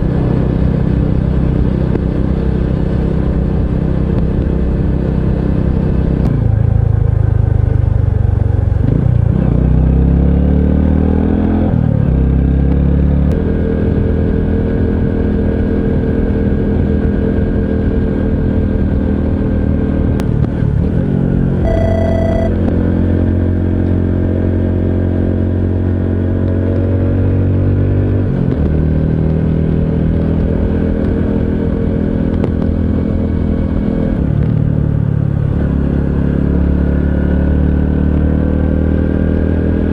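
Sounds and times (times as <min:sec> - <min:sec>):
short high beep: 0:21.6 - 0:22.6.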